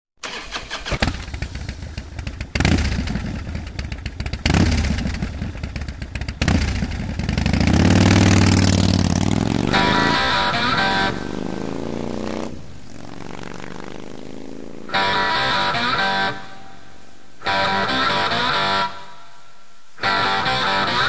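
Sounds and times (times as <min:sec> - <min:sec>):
motorcycle engines running: 0:01.0 - 0:17.8
engine revving up: 0:02.5 - 0:03.4, 0:04.4 - 0:05.3, 0:06.4 - 0:19.0.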